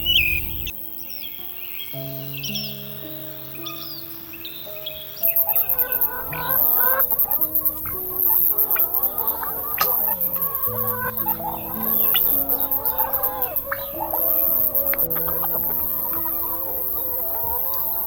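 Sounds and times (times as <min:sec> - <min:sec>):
shrill pulsing high hiss: 0:00.0 - 0:18.0
soft background music: 0:00.0 - 0:18.0
chickens clucking: 0:05.2 - 0:18.0.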